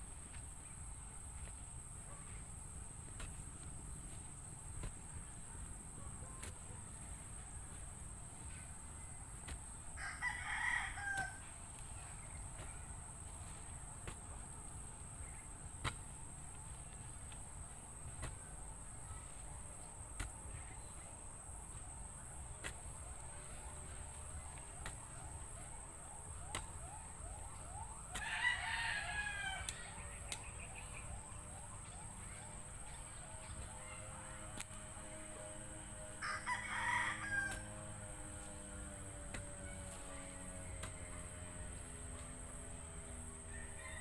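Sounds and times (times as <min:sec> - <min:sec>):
rooster crowing: 0:10.0 - 0:11.5, 0:28.1 - 0:30.0, 0:36.2 - 0:37.9, 0:43.4 - 0:44.0.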